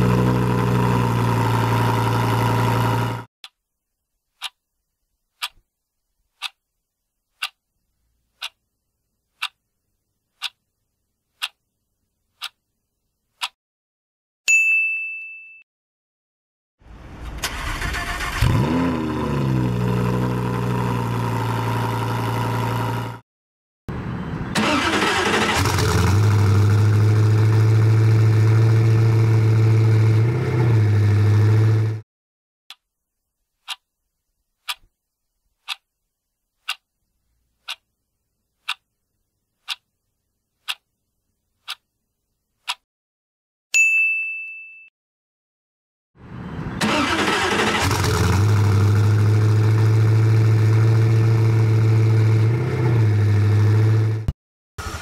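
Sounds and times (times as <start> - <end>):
car engine revving and idling: 0.0 - 3.3, 16.9 - 23.2, 23.9 - 32.0, 46.3 - 55.0
clock ticking: 4.4 - 4.6, 5.4 - 5.6, 6.4 - 6.6, 7.4 - 7.6, 8.4 - 8.6, 9.4 - 9.6, 10.4 - 10.6, 11.4 - 11.6, 12.4 - 12.6, 13.4 - 13.6, 33.6 - 33.9, 34.6 - 34.9, 35.6 - 35.9, 36.6 - 36.9, 37.6 - 37.9, 38.6 - 38.9, 39.6 - 39.9, 40.6 - 40.9, 41.6 - 41.9, 42.6 - 42.8
bell ding: 14.5 - 15.6, 43.8 - 44.9.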